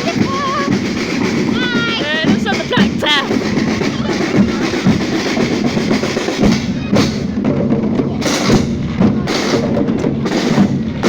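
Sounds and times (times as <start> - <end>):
drum band playing: 0.0 - 11.0
sharp drum strikes: 0.0 - 11.0.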